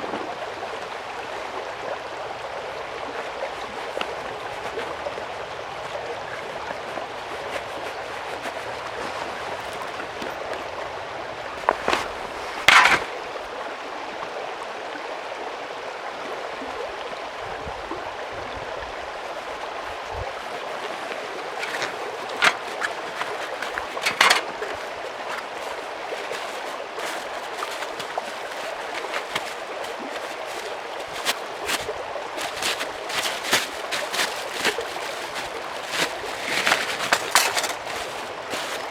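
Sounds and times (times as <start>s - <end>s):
sharp knocks and clatters: 11.6s - 13.3s, 21.6s - 38.9s
stream running: 11.6s - 38.9s.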